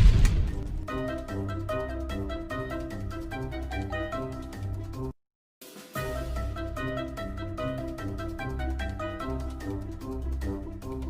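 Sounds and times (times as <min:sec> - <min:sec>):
music with drum beat and bass: 0:05.6 - 0:08.4.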